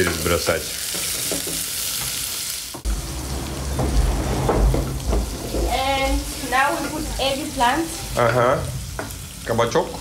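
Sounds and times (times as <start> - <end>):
onions sizzling in oil: 0.0 - 10.0
low rumble: 2.9 - 8.8.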